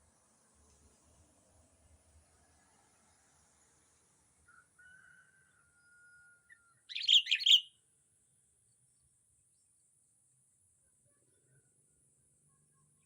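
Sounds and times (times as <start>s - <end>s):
bird chirping: 6.8s - 7.7s.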